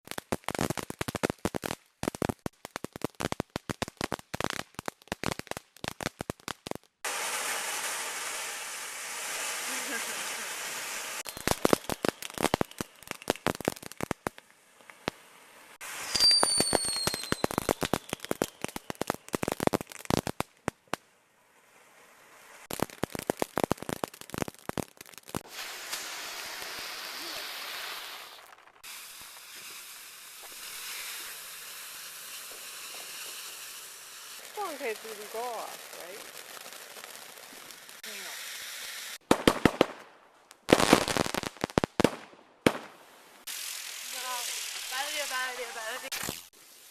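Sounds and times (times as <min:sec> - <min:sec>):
fireworks crackling pops: 0:00.0 - 0:46.9
firework hiss: 0:00.1 - 0:21.0, 0:21.6 - 0:39.9, 0:40.7 - 0:46.9
falling firework whistle: 0:07.0 - 0:14.1, 0:15.7 - 0:19.2, 0:25.3 - 0:35.7.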